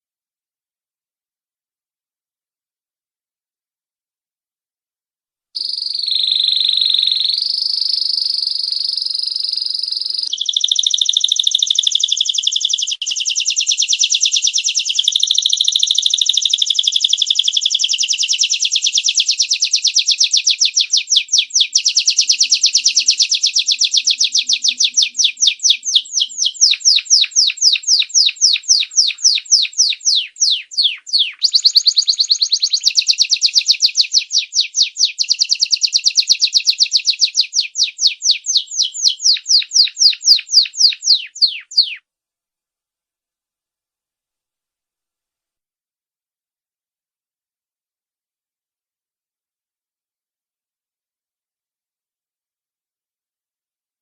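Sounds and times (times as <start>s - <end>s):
canary singing trills: 5.6s - 42.0s.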